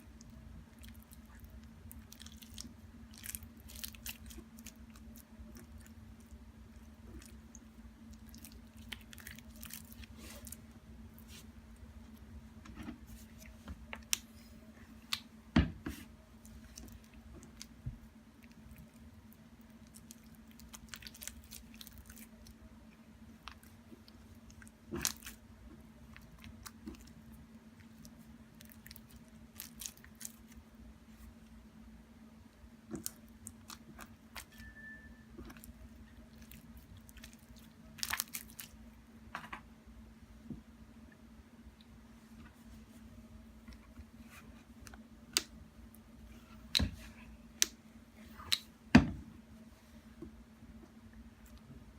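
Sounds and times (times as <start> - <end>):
slime squishing: 0.0 - 12.2, 12.8 - 31.6, 32.5 - 34.6, 35.4 - 38.8
faint steady hum: 0.0 - 51.9.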